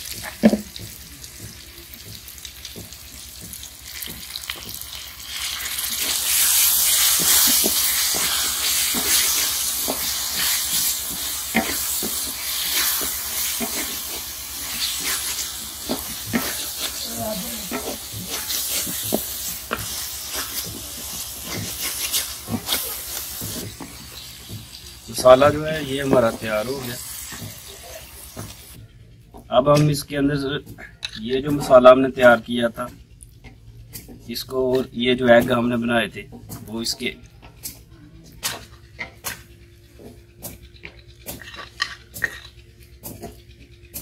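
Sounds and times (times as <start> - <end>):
masala sizzling in a pot: 0.0 - 28.8
wooden spoon scraping a pot: 5.4 - 28.8.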